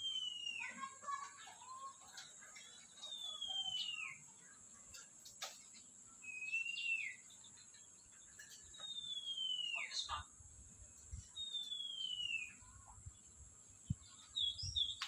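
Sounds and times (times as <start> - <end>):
lovebird whistled calls: 0.0 - 0.7, 3.1 - 4.2, 6.2 - 7.2, 8.8 - 10.1, 11.4 - 12.6.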